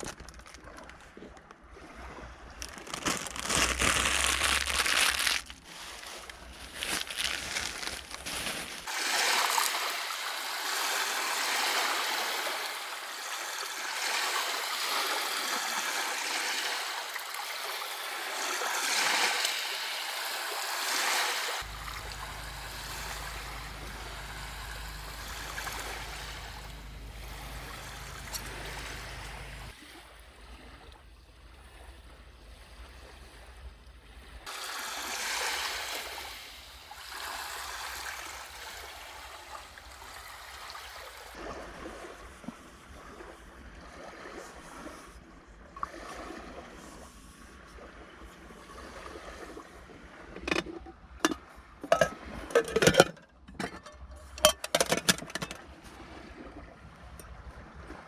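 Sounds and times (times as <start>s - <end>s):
steady rain falling: 21.6s - 29.7s.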